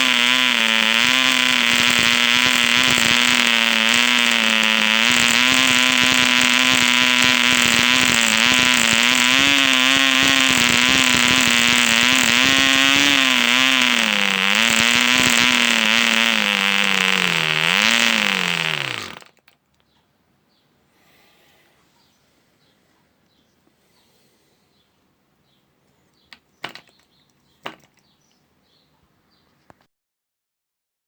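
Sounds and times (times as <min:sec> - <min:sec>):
model engine buzzing: 0:00.0 - 0:19.6.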